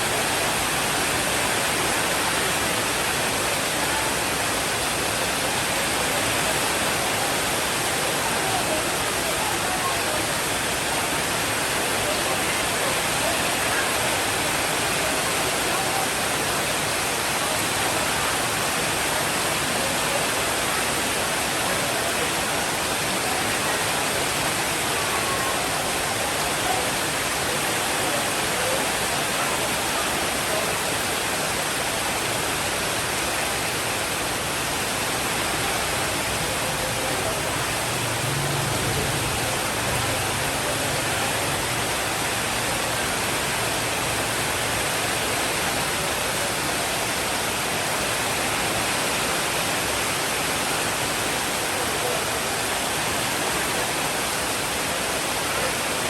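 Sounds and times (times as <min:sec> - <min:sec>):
rainfall hiss: 0:00.0 - 0:56.0.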